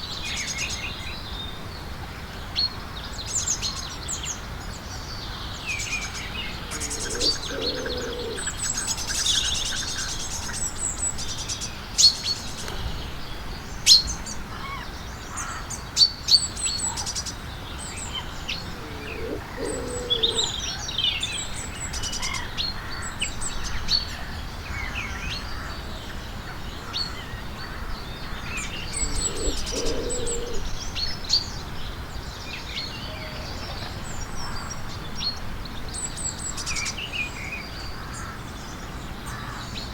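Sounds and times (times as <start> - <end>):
small birds chirping: 2.7 - 24.1, 24.8 - 39.9
lower bird call: 6.0 - 9.9, 18.0 - 20.8, 28.2 - 30.7.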